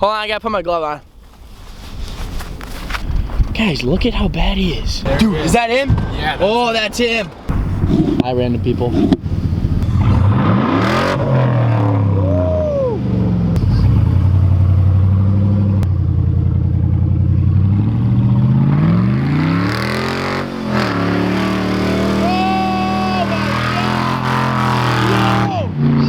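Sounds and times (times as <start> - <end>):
vehicle engine revving hard: 7.8 - 15.8, 17.5 - 26.0.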